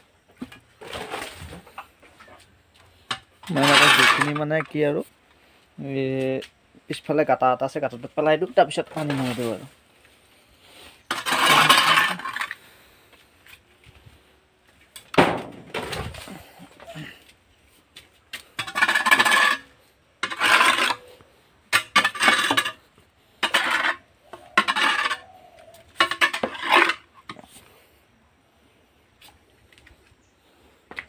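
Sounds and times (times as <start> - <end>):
metal hoe scraping floor: 0.4 - 4.9, 8.7 - 9.8, 10.7 - 12.7, 18.4 - 27.6.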